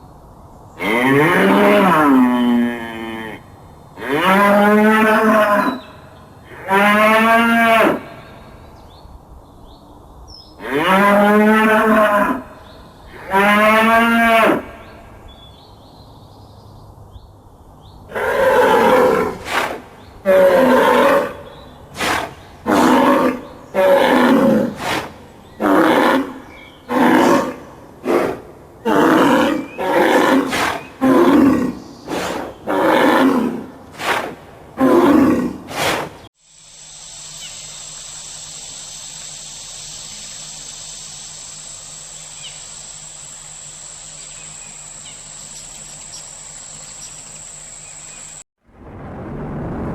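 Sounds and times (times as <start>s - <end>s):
large animal calling loudly: 20.3s - 34.1s.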